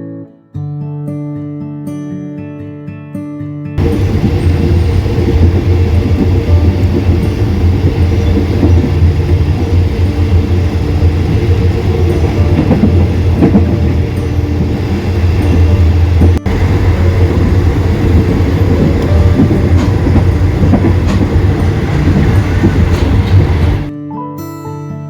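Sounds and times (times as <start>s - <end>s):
acoustic guitar music: 0.0s - 25.0s
train rumbling on rails: 3.8s - 23.9s
knocks from track: 19.0s - 23.9s.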